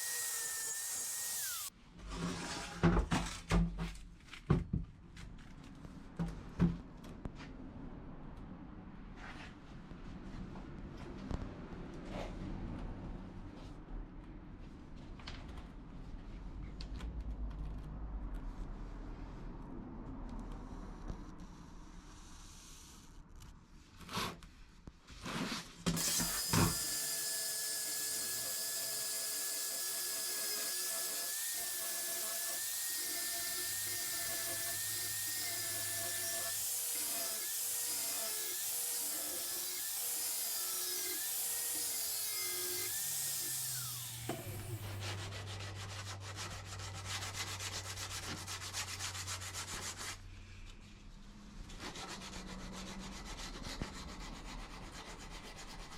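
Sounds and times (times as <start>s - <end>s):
power sander on steel: 0.0s - 1.7s, 26.0s - 50.0s.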